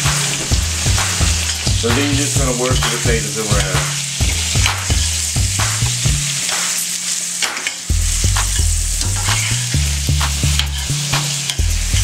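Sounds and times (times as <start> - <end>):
potatoes sizzling in a skillet: 0.0 - 12.0
low hum changing pitch: 7.9 - 12.0
spatula scraping a skillet: 9.0 - 9.8.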